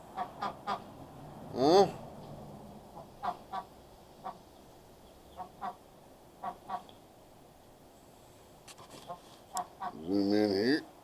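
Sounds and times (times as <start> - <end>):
ducks quacking softly: 0.1 - 0.9, 2.9 - 4.6, 5.2 - 7.0, 9.0 - 10.7.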